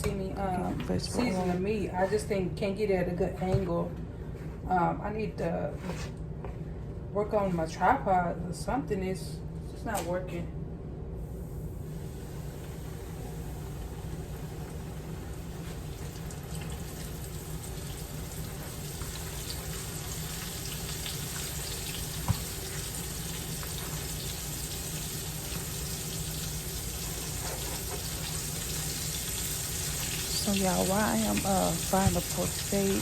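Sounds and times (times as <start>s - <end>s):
meat sizzling in a pan: 12.0s - 33.0s.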